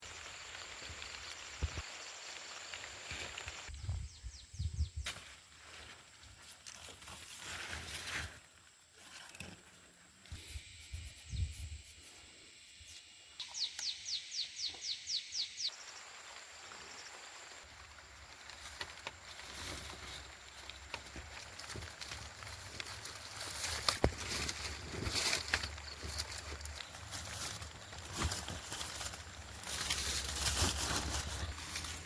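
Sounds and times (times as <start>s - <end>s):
steady high hiss: 10.0s - 20.9s.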